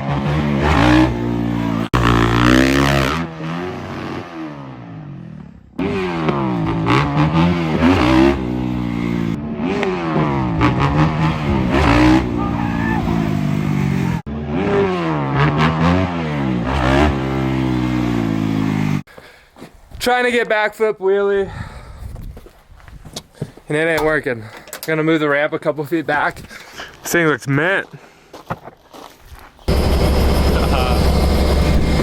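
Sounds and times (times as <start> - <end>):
dirt bike engine revving: 0.0 - 19.0, 29.7 - 32.0.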